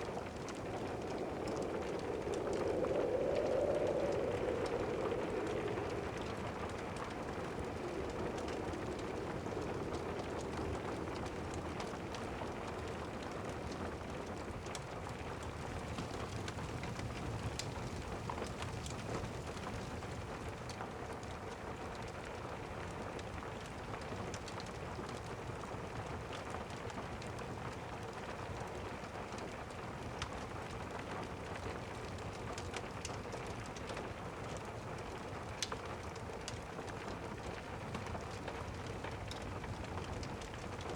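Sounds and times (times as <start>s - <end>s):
low rumble: 0.0s - 13.2s
fireplace crackling: 0.0s - 20.4s
steady rain: 0.0s - 40.9s.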